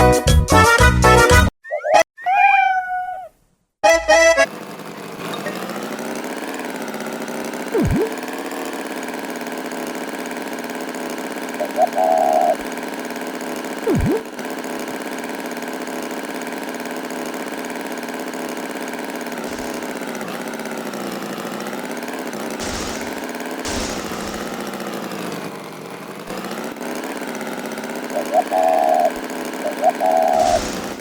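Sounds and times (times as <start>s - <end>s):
engine running: 3.9s - 31.0s
bursts of hiss: 19.5s - 20.3s, 22.5s - 26.3s, 28.1s - 31.0s.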